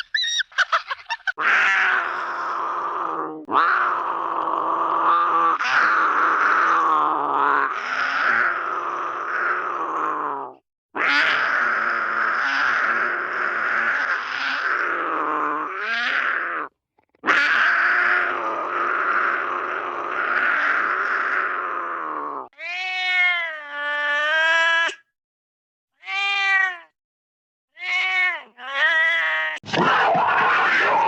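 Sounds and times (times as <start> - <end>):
pitched calls bending up and down: 0.0 - 1.3
raspy cartoon animal cries: 0.0 - 4.1, 11.0 - 25.0, 26.0 - 26.9, 27.8 - 31.0.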